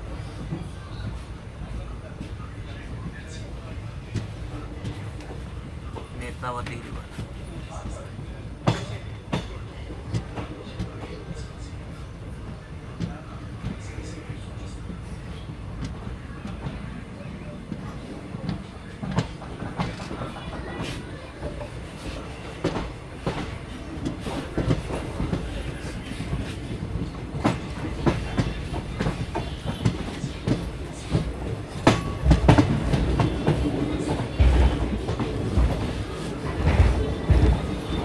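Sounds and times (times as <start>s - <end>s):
train rumbling on rails: 0.0s - 38.0s
heavy train thumps: 8.6s - 11.0s, 17.7s - 38.0s.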